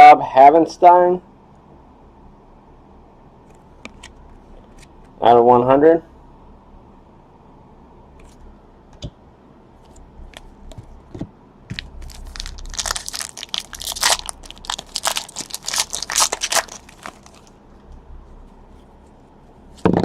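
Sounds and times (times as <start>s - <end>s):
foil wrapper tearing and crinkling: 11.7s - 17.5s.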